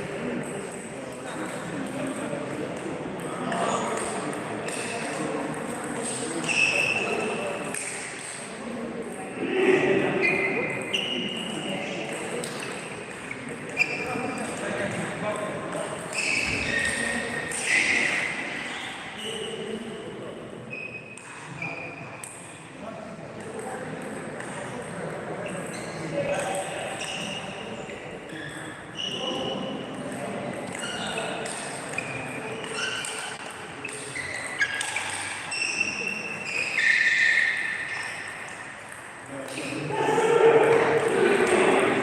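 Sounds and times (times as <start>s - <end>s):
indistinct echoing voices: 0.0s - 20.7s, 21.5s - 42.0s
shoe squeaks: 6.3s - 7.3s, 10.2s - 11.7s, 12.6s - 14.6s, 16.0s - 19.9s, 20.7s - 22.2s, 25.4s - 29.8s, 30.7s - 38.8s.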